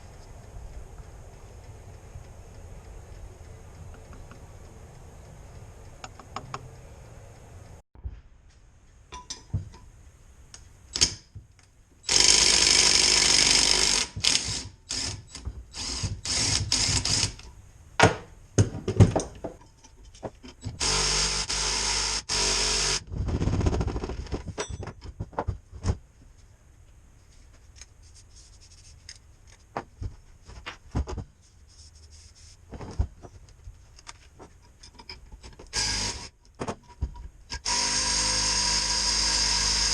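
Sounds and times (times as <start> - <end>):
tools clicking and knocking: 9.1 - 9.9, 14.0 - 20.8, 23.6 - 25.6, 34.0 - 37.7
power tool running in bursts: 37.6 - 39.9.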